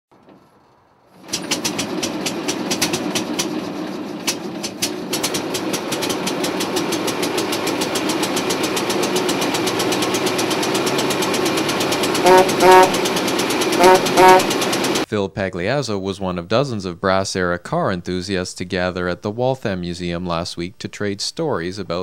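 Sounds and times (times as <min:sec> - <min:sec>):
old car engine clattering: 0:00.1 - 0:15.1.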